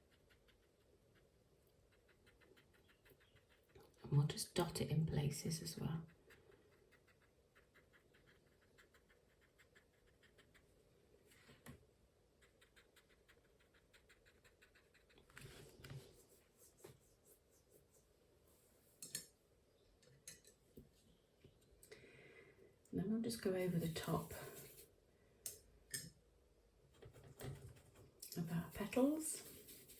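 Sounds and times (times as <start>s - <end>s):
paintbrush dabbing on paper: 23.6s - 24.9s, 28.6s - 29.9s.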